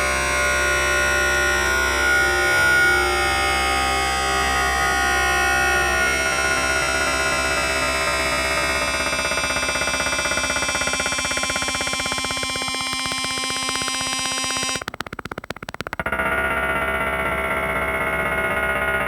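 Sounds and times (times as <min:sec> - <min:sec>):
harsh synthesizer drone: 0:00.0 - 0:19.0
synthesizer rapid stutter: 0:09.0 - 0:18.0.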